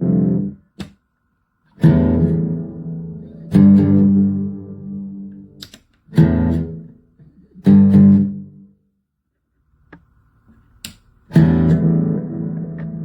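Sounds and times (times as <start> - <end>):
electric guitar chords: 0.0 - 0.7, 1.8 - 7.0, 7.6 - 8.7, 11.3 - 13.0
clicks: 5.6 - 6.1.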